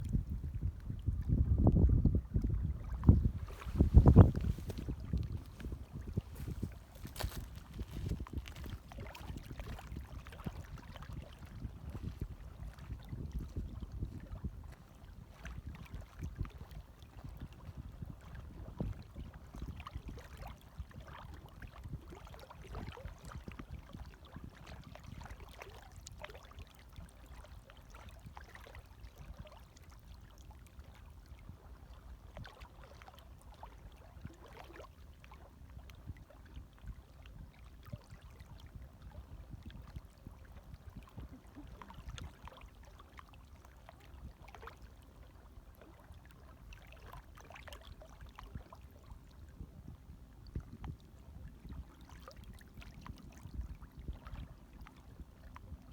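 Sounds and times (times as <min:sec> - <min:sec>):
small splashes and trickles: 0:02.4 - 0:55.9
waves lapping gently: 0:02.7 - 0:13.1, 0:24.0 - 0:50.4.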